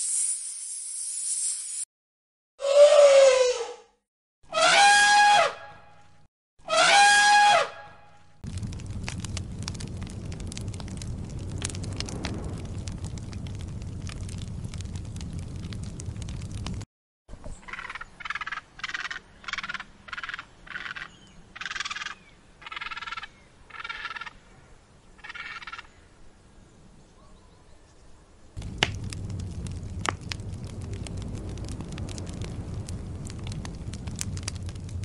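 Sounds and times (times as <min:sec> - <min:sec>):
sharp crackles: 0:08.1 - 0:16.9, 0:28.6 - 0:35.0.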